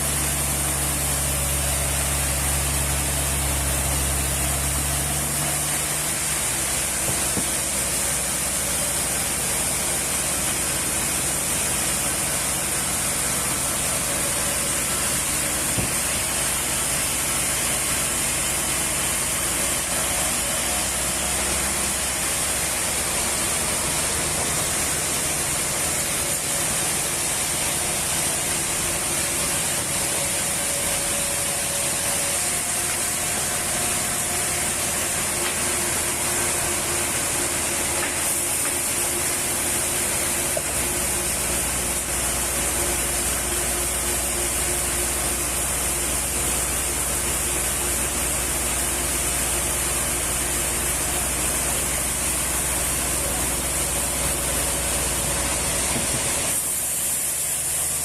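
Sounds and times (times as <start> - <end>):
workshop machine hiss: 0.0 - 58.0.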